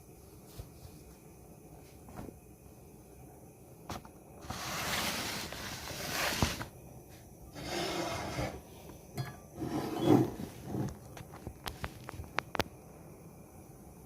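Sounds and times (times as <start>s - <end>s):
rasping scrape in kitchen: 4.4s - 6.7s, 7.5s - 11.0s.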